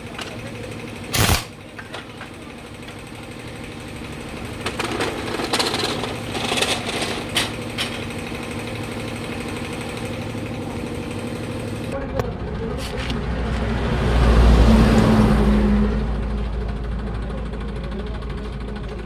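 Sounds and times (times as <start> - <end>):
power tool rattling: 0.0 - 3.1, 4.3 - 12.0
steady machine hum: 0.0 - 13.5.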